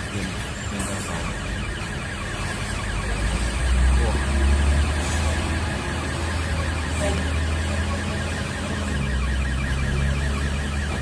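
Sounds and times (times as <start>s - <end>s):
fast repeating high warble: 0.0s - 11.0s
vehicle engine and road rumble: 0.0s - 11.0s.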